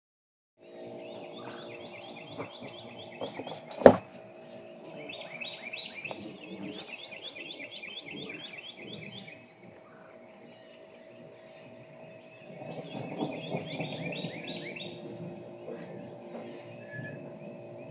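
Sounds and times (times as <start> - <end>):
bird chirping: 0.6 - 17.9
low hum of fixed tones: 0.6 - 17.9
sharp knock: 3.2 - 4.2.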